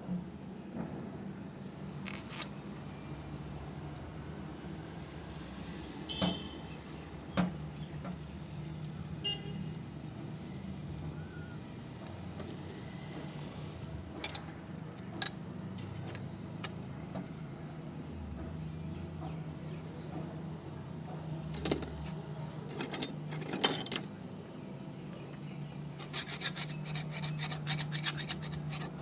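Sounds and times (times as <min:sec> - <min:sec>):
metal tools clinking: 0:21.5 - 0:24.2.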